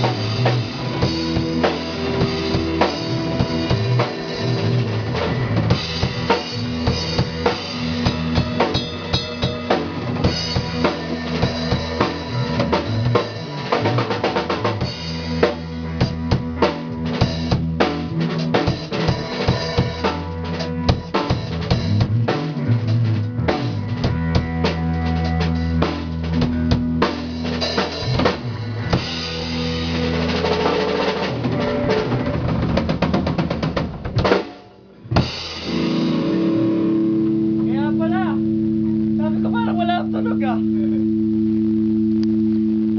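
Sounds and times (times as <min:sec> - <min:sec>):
drum kit kick and snare: 0:00.0 - 0:24.7
sustained bass notes: 0:00.0 - 0:42.9.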